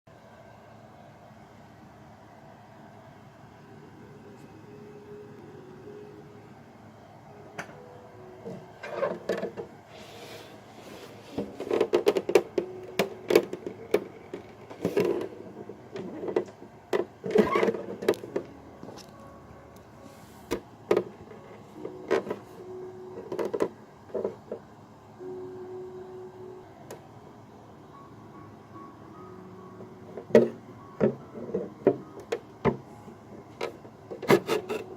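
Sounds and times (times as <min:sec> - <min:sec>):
low steady hum: 0:00.1 - 0:34.9
plastic parts clicking and knocking: 0:11.4 - 0:15.3, 0:15.9 - 0:19.2, 0:20.5 - 0:21.4, 0:22.0 - 0:22.4, 0:23.1 - 0:24.7, 0:30.1 - 0:32.8.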